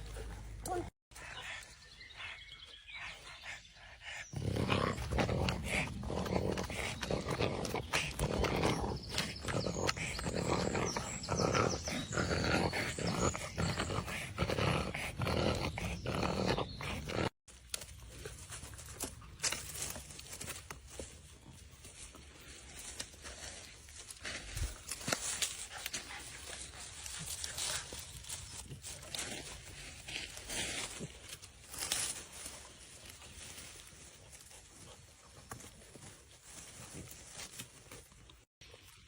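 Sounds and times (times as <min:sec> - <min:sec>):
dog growling: 0:04.3 - 0:17.3.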